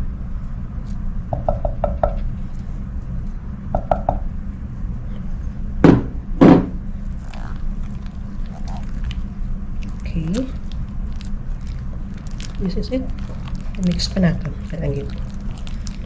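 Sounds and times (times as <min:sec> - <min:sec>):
steady low hum: 0:00.0 - 0:16.0
utensil tapping a mixing bowl: 0:01.4 - 0:02.2.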